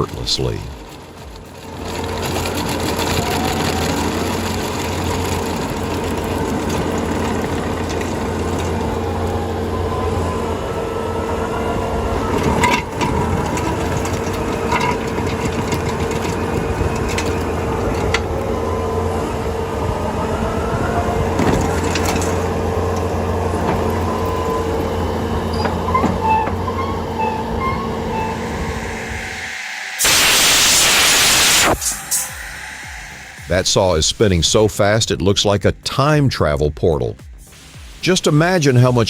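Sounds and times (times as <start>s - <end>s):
cutting wheel grinding wood: 0.0s - 34.0s
engine drone: 0.0s - 34.8s
loud even hiss: 26.6s - 34.8s, 37.4s - 39.0s.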